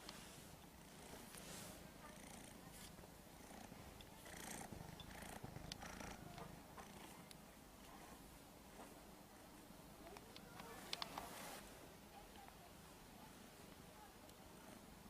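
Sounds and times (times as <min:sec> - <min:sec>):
cat purring: 0:00.2 - 0:08.3.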